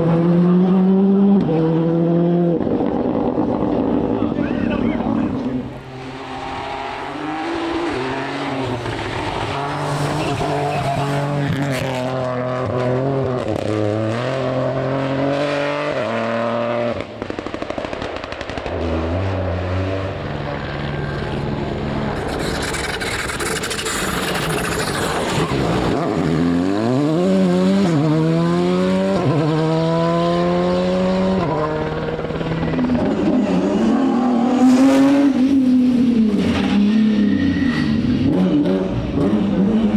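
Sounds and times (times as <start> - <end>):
rally car engine revving: 0.0 - 17.6, 18.2 - 39.9.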